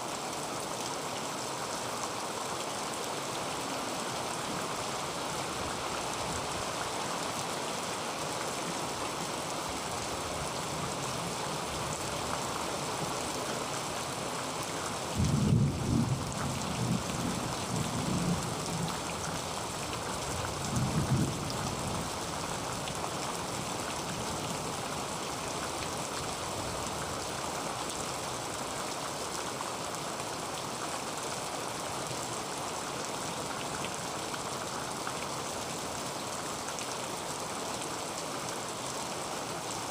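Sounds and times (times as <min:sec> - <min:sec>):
heavy rain on a tin roof: 0:00.0 - 0:39.9
thunder rumbling: 0:15.2 - 0:17.0.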